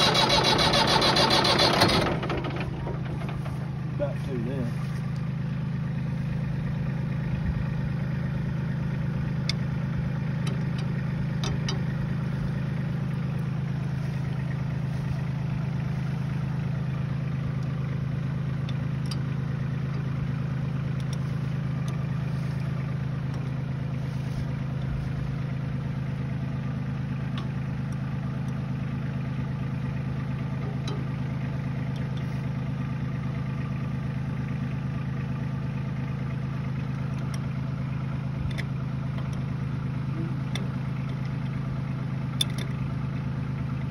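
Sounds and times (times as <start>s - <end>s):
diesel tractor engine idling: 0.0s - 43.9s.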